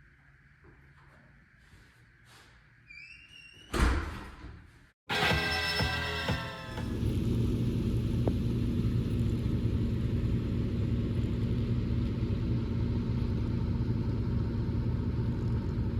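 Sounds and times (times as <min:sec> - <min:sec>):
low mechanical rumble: 0:06.8 - 0:15.9.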